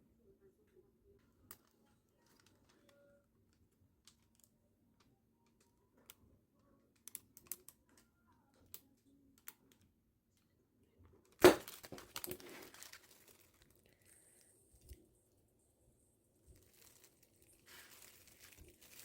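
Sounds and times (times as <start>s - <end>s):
rustling clatter: 11.4s - 14.0s.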